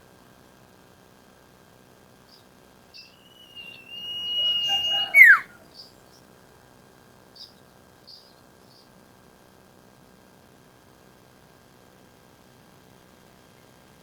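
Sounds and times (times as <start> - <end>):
bird long whistle: 3.0 - 5.6.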